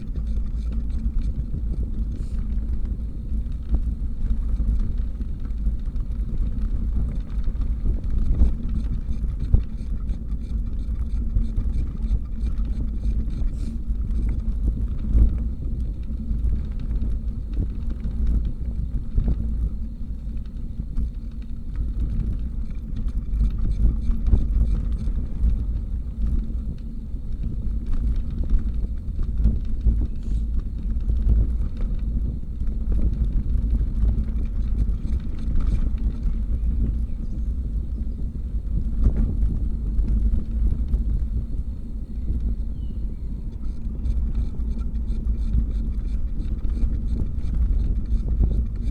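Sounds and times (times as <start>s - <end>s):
bicycle road noise: 0.0s - 48.9s
wind rumble on microphone: 0.0s - 48.9s.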